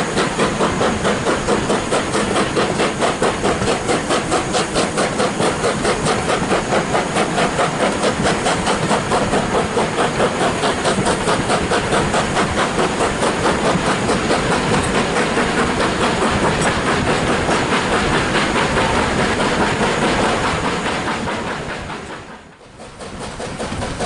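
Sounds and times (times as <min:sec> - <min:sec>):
steam train rhythmic beat: 0:00.0 - 0:24.0
train running noise: 0:00.0 - 0:24.0.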